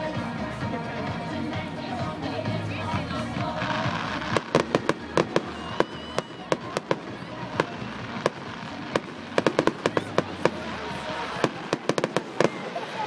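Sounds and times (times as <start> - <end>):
fireworks banging: 3.4 - 13.0.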